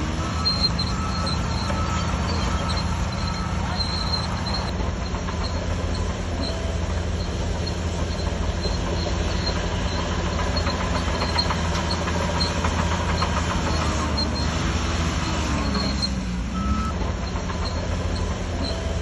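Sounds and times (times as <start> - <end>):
bulldozer diesel engine running: 0.0 - 19.0
rapid metallic clatter: 0.3 - 14.6.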